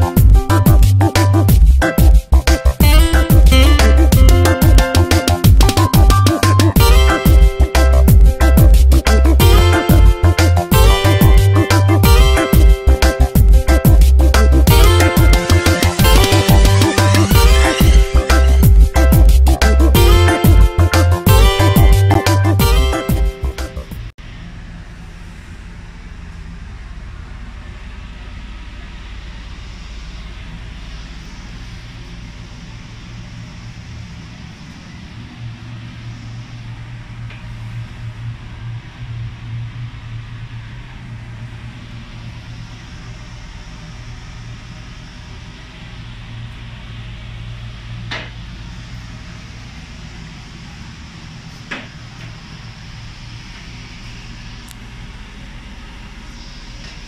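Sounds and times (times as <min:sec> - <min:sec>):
machine hum: 0:00.0 - 0:57.0
mechanical drone with hiss: 0:00.0 - 0:57.0
hiss of moving air: 0:29.2 - 0:57.0.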